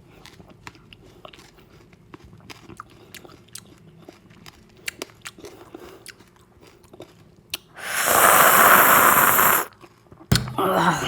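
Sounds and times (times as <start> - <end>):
wet mouth clicks and chewing: 0.0 - 8.6
loud hissing slurp: 7.8 - 9.7.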